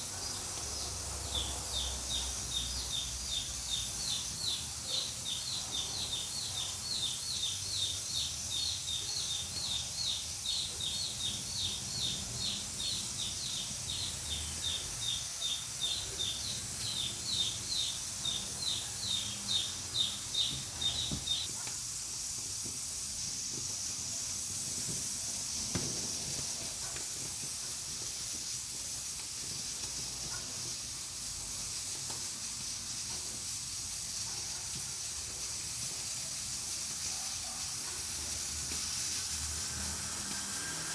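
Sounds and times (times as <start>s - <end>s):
pressure cooker hissing: 0.0s - 40.9s
bird chirping: 0.1s - 21.5s.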